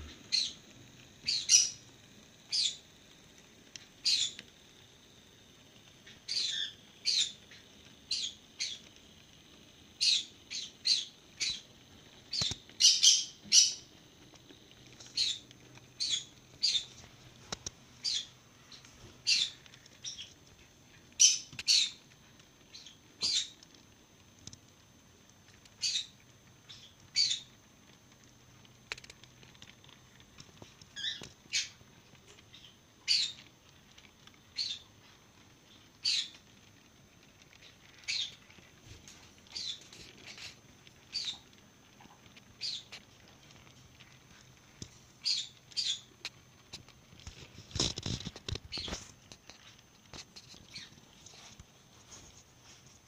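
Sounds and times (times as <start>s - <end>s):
small bird chirping: 0.0s - 2.9s, 3.8s - 4.6s, 6.0s - 8.9s, 9.9s - 23.7s, 25.6s - 27.6s, 30.6s - 36.4s, 37.4s - 43.3s, 45.1s - 51.5s.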